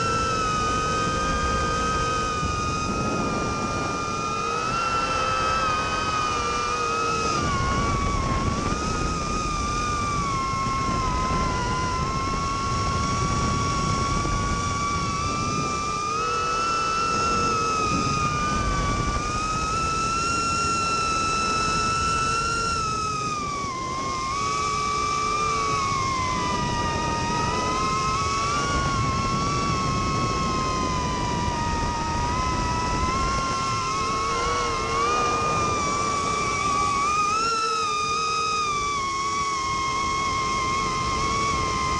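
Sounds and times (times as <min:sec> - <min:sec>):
quadcopter motors whining: 0:00.0 - 0:41.9
rushing noise: 0:25.2 - 0:41.8.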